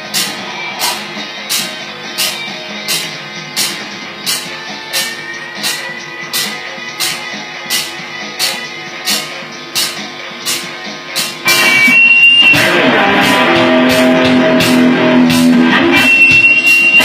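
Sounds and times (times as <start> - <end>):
guitar solo: 0.0 - 9.6, 11.4 - 17.0
steady drum beat: 0.0 - 17.0.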